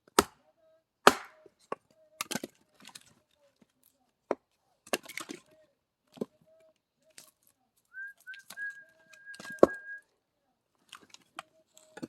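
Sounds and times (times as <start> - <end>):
axe striking a log: 0.1 - 0.4, 1.0 - 1.5
knocks of wood: 1.1 - 1.3
high whistle-like tone: 7.9 - 10.0.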